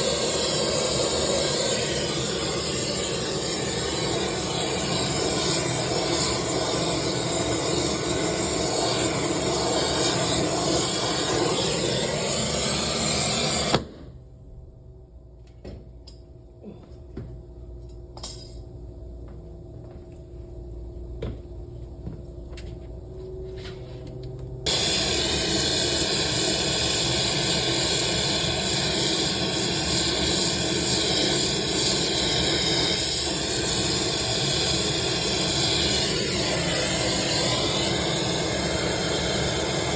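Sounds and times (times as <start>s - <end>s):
gas hissing from valve: 0.0s - 14.0s, 24.7s - 39.9s.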